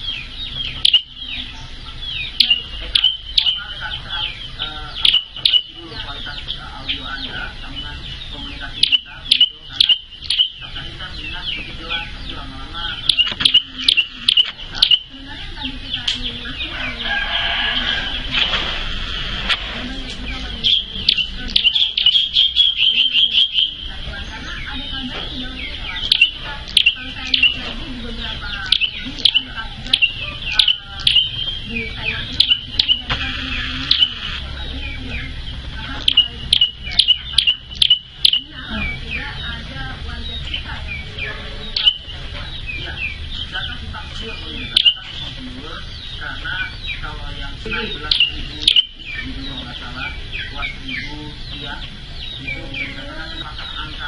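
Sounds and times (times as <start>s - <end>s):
songbird singing high notes: 0.0s - 19.4s, 20.1s - 39.7s
bird chirping: 0.0s - 54.0s
faint speech: 0.0s - 54.0s.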